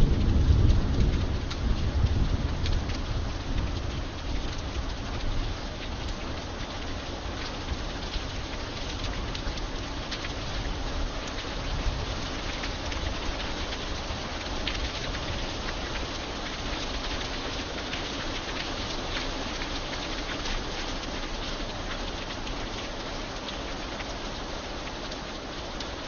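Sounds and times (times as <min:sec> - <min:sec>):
rain falling: 0:00.0 - 0:26.0
raindrops ticking on a surface: 0:00.0 - 0:26.0.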